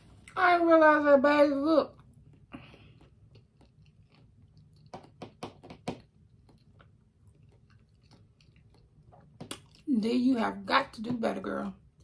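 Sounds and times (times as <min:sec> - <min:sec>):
person chewing food: 0:01.9 - 0:09.9.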